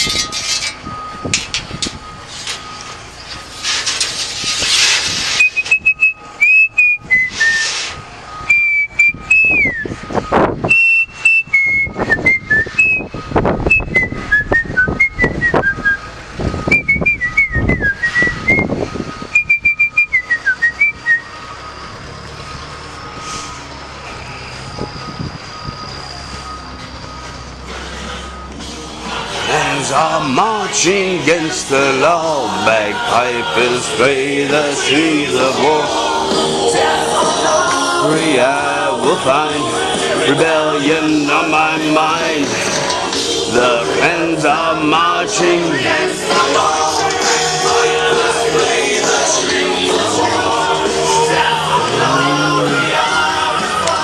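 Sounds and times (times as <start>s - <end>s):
person whistling a tune: 5.4s - 21.4s.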